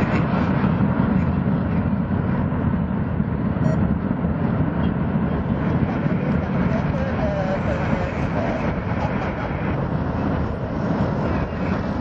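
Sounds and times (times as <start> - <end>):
jet engines deep rumble: 0.0 - 12.0.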